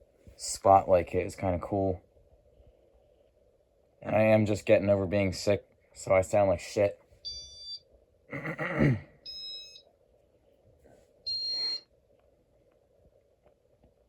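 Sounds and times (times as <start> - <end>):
faint steady hum: 0.0 - 14.0
high electronic beeps: 7.3 - 7.8, 9.3 - 9.8, 11.3 - 11.8
throaty vocal sound: 8.3 - 9.1.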